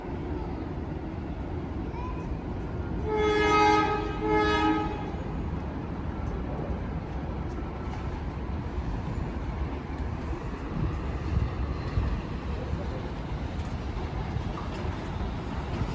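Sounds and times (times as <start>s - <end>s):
low train rumble: 0.0s - 15.9s
train horn blasts: 3.0s - 5.2s.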